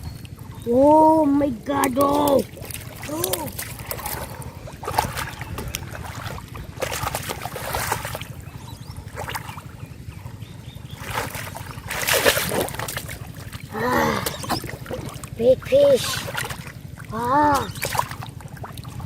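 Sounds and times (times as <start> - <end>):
water splashing and sloshing: 0.0 - 19.0
short vocal exclamation: 13.7 - 14.6.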